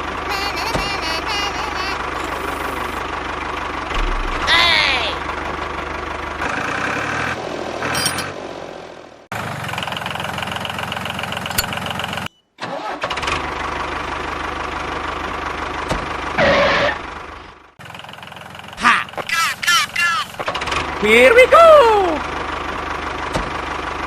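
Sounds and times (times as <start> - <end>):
mini tractor engine running: 0.0 - 3.9, 17.1 - 24.0.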